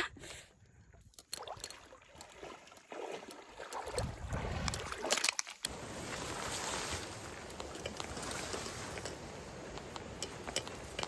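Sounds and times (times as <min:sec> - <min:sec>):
wind on microphone: 0:03.9 - 0:04.9.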